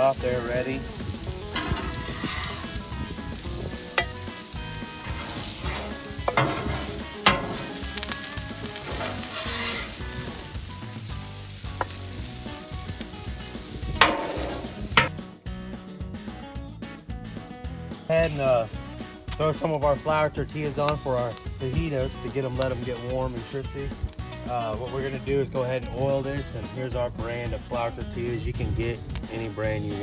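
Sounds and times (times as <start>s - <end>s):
food sizzling on griddle: 0.0s - 15.1s, 18.1s - 30.0s
metal utensil scraping griddle: 0.0s - 15.1s, 18.1s - 23.6s.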